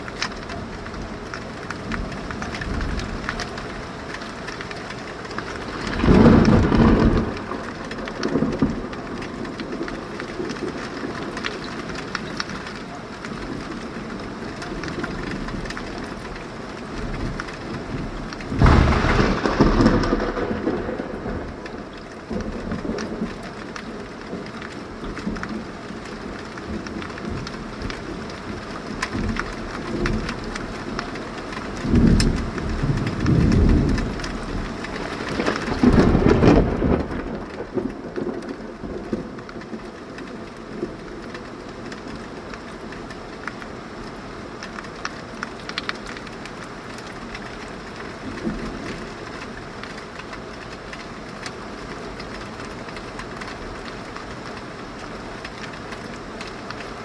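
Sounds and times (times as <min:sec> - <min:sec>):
thunder rumbling: 0:00.0 - 0:12.6, 0:17.0 - 0:42.2
heavy rain: 0:00.0 - 0:57.0.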